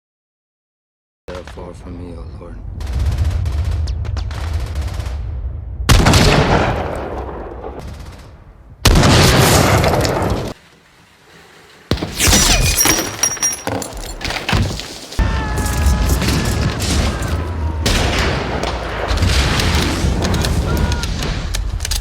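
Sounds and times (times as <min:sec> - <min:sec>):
explosions: 0:01.3 - 0:10.6, 0:14.2 - 0:22.0
crashing debris: 0:11.9 - 0:22.0.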